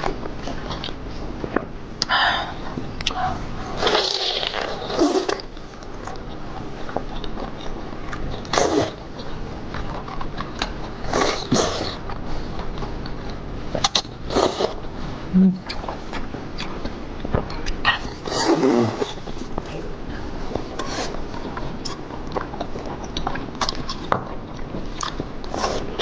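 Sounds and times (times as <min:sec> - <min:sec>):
wet chewing and mouth noises: 0:00.0 - 0:26.0
wet slurping: 0:03.1 - 0:05.6, 0:08.4 - 0:09.1, 0:09.8 - 0:12.2, 0:13.8 - 0:14.8, 0:17.4 - 0:19.7.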